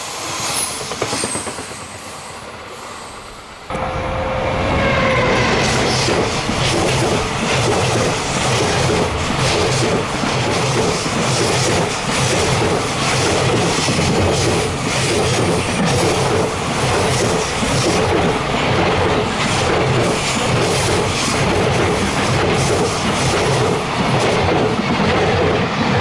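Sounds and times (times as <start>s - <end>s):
freight train rumble: 0.0s - 26.0s
train wheels clattering over rail joints: 5.9s - 26.0s.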